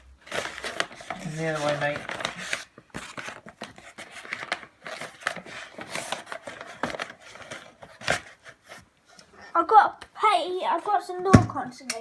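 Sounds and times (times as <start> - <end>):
things being handled and moved: 0.0 - 9.5.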